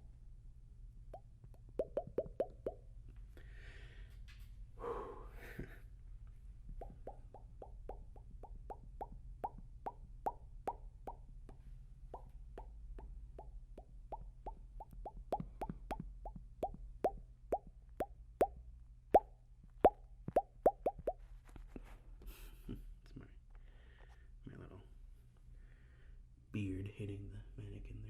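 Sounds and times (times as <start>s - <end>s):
wet mouth pops: 1.1s - 2.8s, 6.7s - 18.6s, 19.2s - 21.2s.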